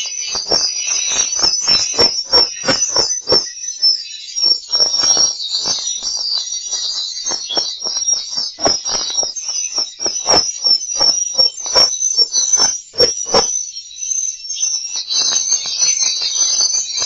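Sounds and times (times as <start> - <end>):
swiftlets twittering: 0.0 - 3.6, 4.4 - 13.5.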